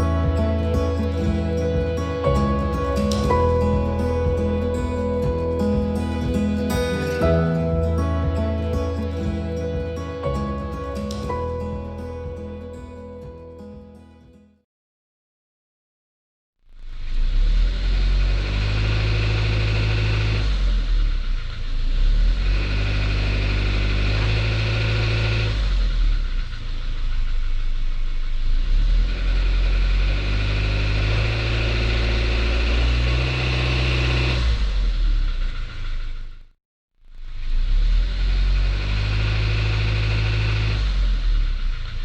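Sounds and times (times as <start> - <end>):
car engine running under load: 16.7 - 42.0
engine rattle: 16.7 - 42.0.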